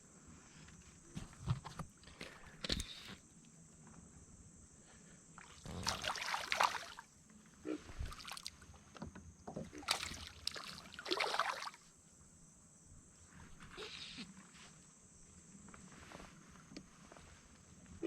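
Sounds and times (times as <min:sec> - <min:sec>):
water sloshing around boat: 0:05.4 - 0:07.2, 0:07.8 - 0:11.9.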